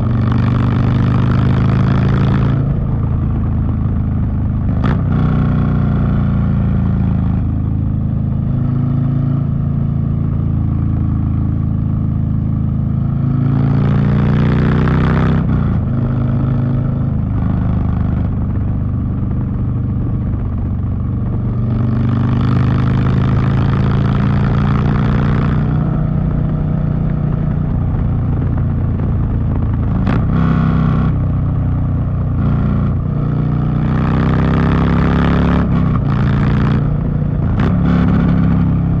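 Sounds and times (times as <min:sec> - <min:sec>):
motorcycle engine revving: 0:00.0 - 0:39.0
wind noise: 0:23.3 - 0:34.0.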